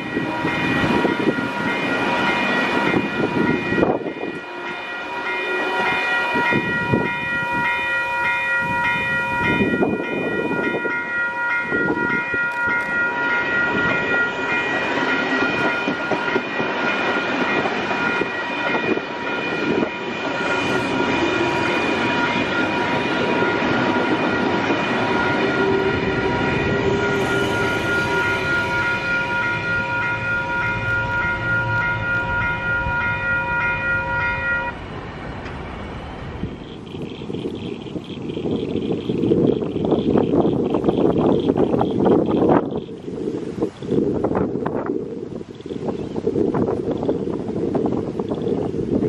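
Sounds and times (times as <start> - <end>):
level crossing bell ringing: 0.0 - 34.8
train wheels rumbling on rails: 0.0 - 49.0.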